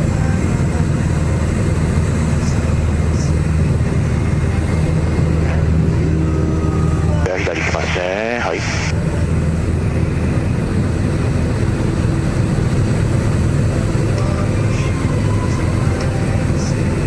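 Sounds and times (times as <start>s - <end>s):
airplane engine droning: 0.0s - 17.0s.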